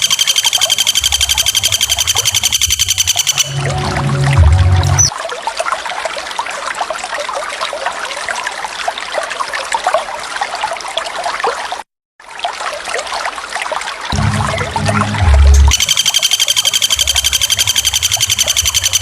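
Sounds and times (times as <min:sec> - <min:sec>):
loud low sound: 0:03.5 - 0:05.1, 0:14.1 - 0:15.8
small waterfall trickling and splashing: 0:05.0 - 0:14.2.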